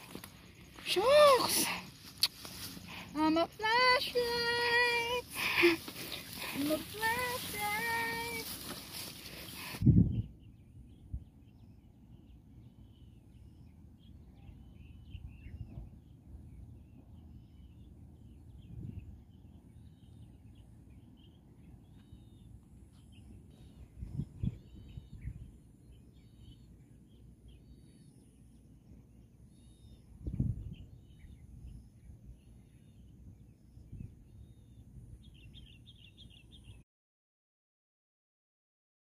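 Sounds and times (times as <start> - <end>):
birds chirping: 0.0 - 36.8
wind buffeting microphone: 9.5 - 11.4, 18.5 - 19.3, 23.8 - 25.6, 30.1 - 32.4.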